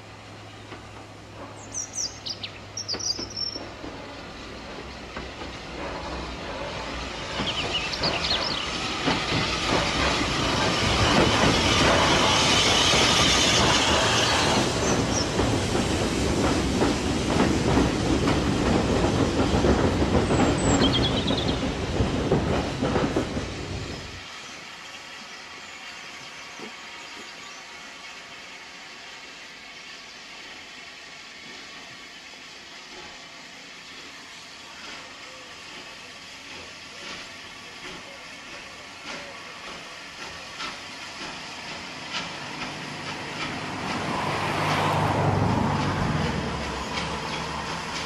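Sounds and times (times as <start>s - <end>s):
train wheels clattering: 0.6s - 24.2s, 34.8s - 48.0s.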